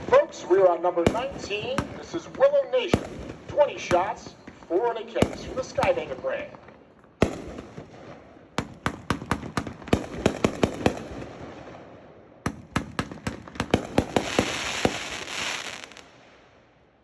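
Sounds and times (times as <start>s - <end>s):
firework cake sharp reports: 0.0s - 11.8s, 13.7s - 16.0s
firework hiss: 14.1s - 16.0s.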